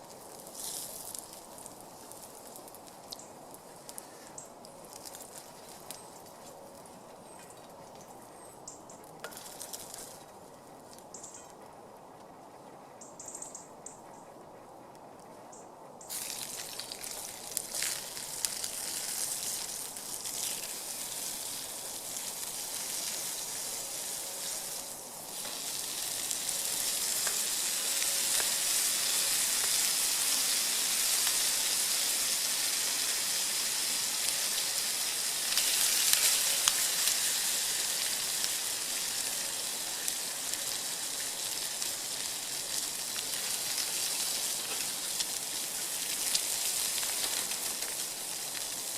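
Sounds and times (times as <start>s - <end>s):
meat sizzling over fire: 0.0s - 6.8s, 9.2s - 10.2s, 16.1s - 48.9s.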